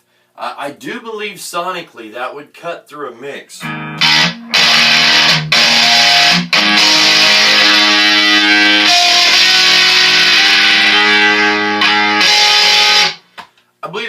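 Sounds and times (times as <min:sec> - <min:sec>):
distorted electric guitar riff: 0:03.6 - 0:13.3.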